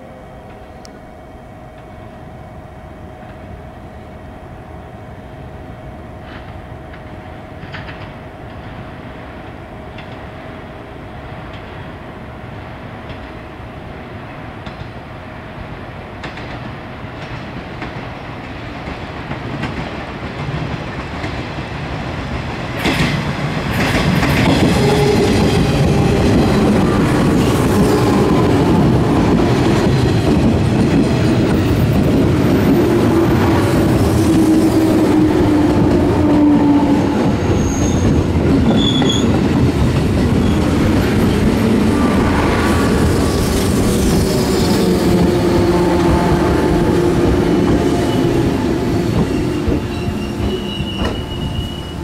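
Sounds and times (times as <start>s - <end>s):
train wheels clattering: 16.2s - 42.2s, 42.8s - 52.0s.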